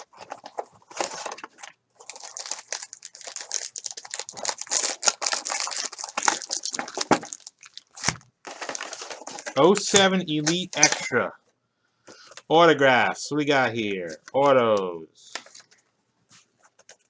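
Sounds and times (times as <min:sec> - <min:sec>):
plastic wrapping crinkling and tearing: 0:00.0 - 0:11.2.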